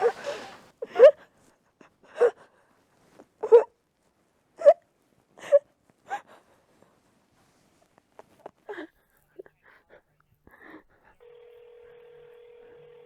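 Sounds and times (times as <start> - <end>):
woman sobbing: 0.0 - 1.4.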